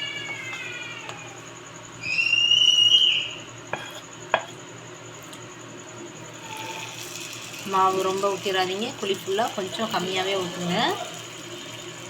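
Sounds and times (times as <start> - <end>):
high-pitched cry: 2.0 - 3.4.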